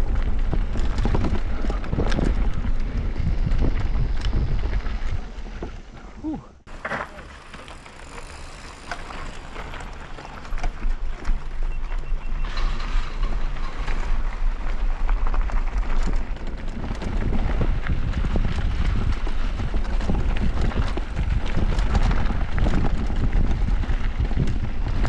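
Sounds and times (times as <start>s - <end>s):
wind rumble on microphone: 0.0s - 6.8s, 7.7s - 25.0s
bike tyres rolling on rough ground: 0.0s - 25.0s
bike clattering over bumps: 6.7s - 25.0s.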